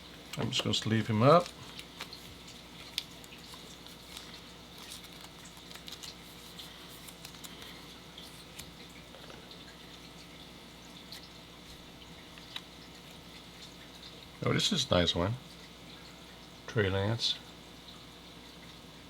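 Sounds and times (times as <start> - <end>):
plastic card sleeve rustling: 0.4 - 9.4.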